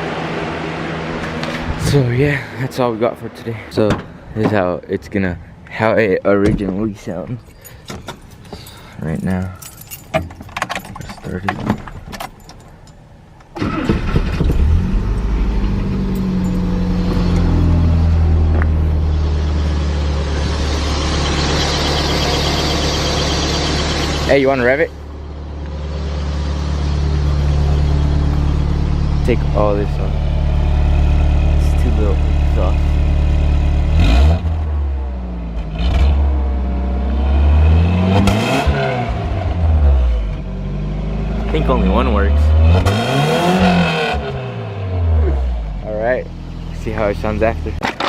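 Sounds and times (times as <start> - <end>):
engine cranking and starting: 13.5 - 16.6
vehicle engine revving: 13.6 - 48.0.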